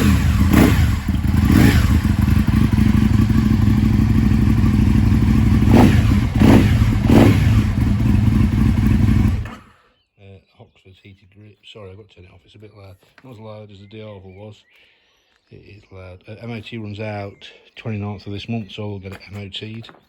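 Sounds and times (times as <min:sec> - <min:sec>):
motorcycle engine revving over idle: 0:00.0 - 0:09.6.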